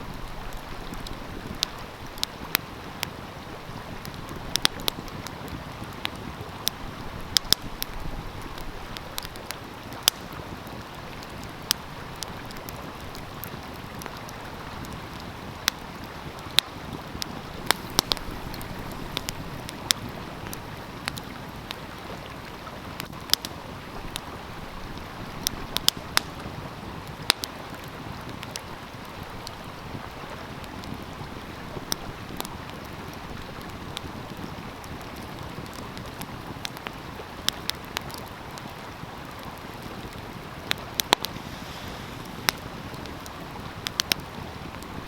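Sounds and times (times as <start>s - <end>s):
stream flowing: 0.0s - 27.0s, 38.3s - 45.0s
wood fire crackling: 0.0s - 30.0s, 30.6s - 45.0s.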